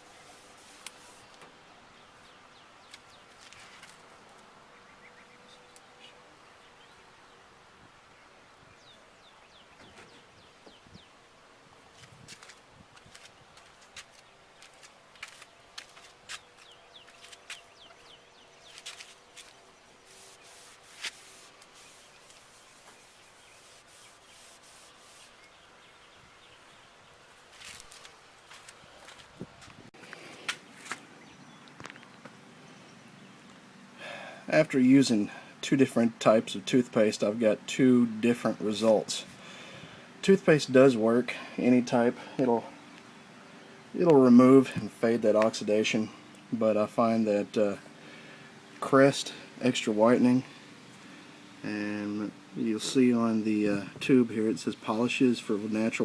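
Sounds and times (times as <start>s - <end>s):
rubbing on plastic lens: 0.2s - 1.4s, 18.6s - 25.4s.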